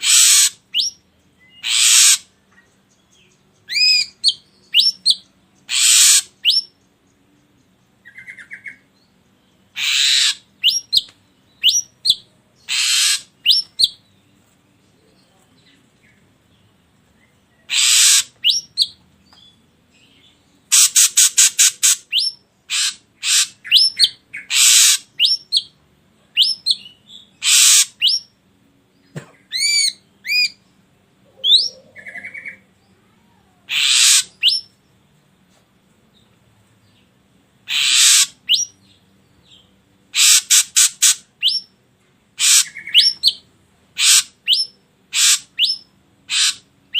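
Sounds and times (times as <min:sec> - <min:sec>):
bird harsh rasping calls: 0:00.0 - 0:02.4, 0:03.7 - 0:06.7, 0:09.7 - 0:14.0, 0:17.7 - 0:19.0, 0:20.7 - 0:25.7, 0:26.4 - 0:28.3, 0:29.2 - 0:30.6, 0:31.3 - 0:32.6, 0:33.7 - 0:34.7, 0:37.6 - 0:38.8, 0:40.1 - 0:41.7, 0:42.4 - 0:43.4, 0:44.0 - 0:46.9.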